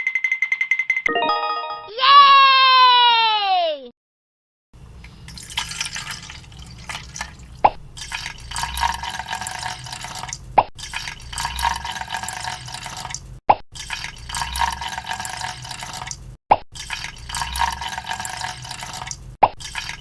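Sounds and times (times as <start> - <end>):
water dripping and trickling: 5.2 - 20.0.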